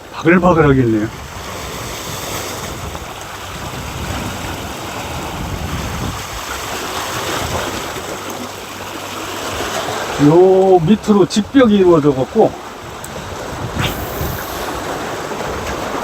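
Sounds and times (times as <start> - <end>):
sea waves on rocky shore: 1.1 - 10.6, 12.6 - 16.0
wind on microphone: 13.4 - 15.9.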